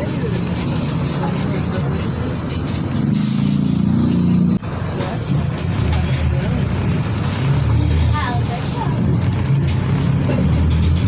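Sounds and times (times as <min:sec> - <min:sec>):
bus diesel engine pulling: 0:00.0 - 0:11.0
air hiss: 0:03.1 - 0:04.0.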